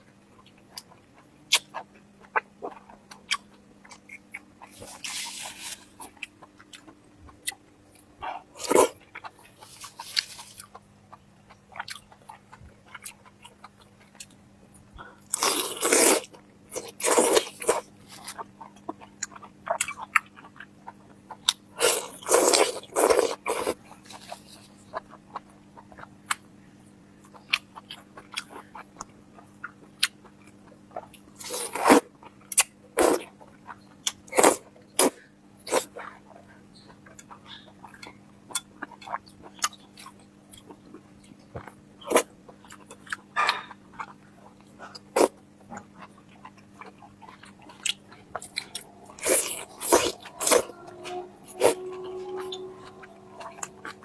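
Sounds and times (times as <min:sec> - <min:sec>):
faint steady hum: 0:00.0 - 0:54.0
person crunching food: 0:01.5 - 0:07.6, 0:08.6 - 0:10.8, 0:15.3 - 0:18.4, 0:21.8 - 0:24.8, 0:46.3 - 0:50.8.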